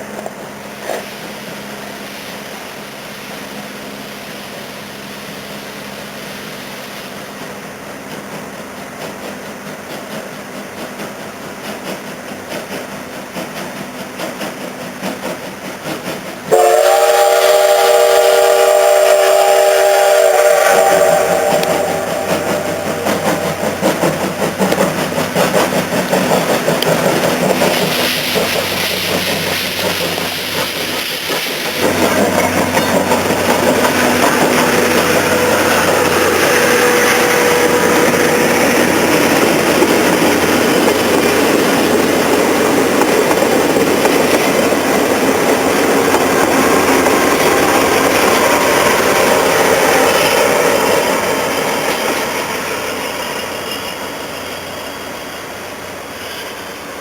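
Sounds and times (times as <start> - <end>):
train wheels clicking over rail joints: 0.0 - 2.7, 3.4 - 57.0
steam locomotive whistle: 16.5 - 24.6, 31.7 - 39.6.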